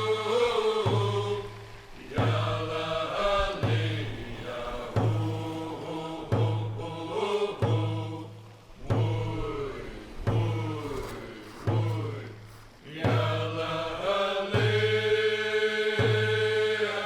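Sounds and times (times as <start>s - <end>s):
slow drum beat: 0.0s - 16.8s
group of voices chanting: 0.0s - 17.0s.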